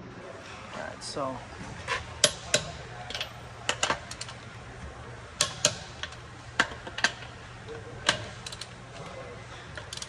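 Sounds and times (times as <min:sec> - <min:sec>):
tools clicking on lug nuts: 0:01.9 - 0:04.4, 0:05.4 - 0:08.8, 0:09.7 - 0:10.0.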